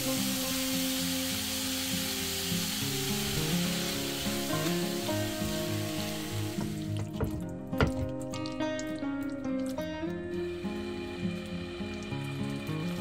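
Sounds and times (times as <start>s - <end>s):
vegetables sizzling in oil: 0.0s - 7.0s
background music: 0.0s - 13.0s
spatula knocking in pan: 6.6s - 8.2s.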